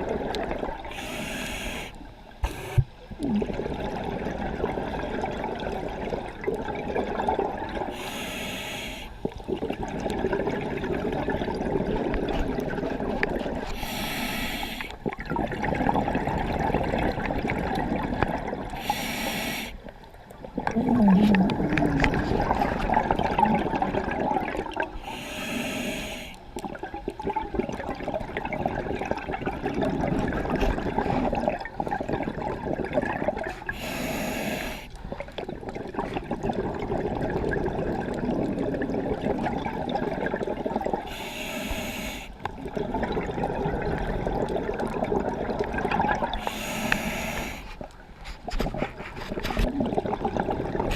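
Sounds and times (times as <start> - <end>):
gurgling exhaled bubbles: 0.0 - 8.4, 9.2 - 50.9
diver inhaling through regulator: 0.9 - 2.9, 7.9 - 9.2, 13.7 - 15.0, 18.8 - 19.8, 25.0 - 26.5, 33.7 - 35.0, 41.0 - 42.4, 46.3 - 47.9.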